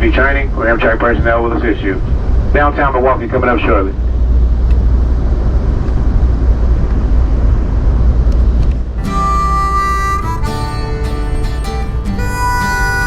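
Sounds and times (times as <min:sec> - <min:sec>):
passenger train rumbling: 0:00.0 - 0:13.0
harmonica music: 0:09.0 - 0:13.0.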